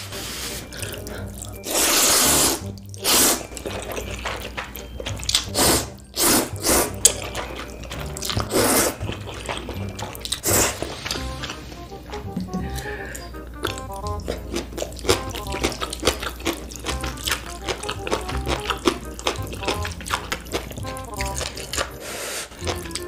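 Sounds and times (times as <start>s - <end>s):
wet slurping of noodles: 0.1s - 11.8s, 21.7s - 23.0s.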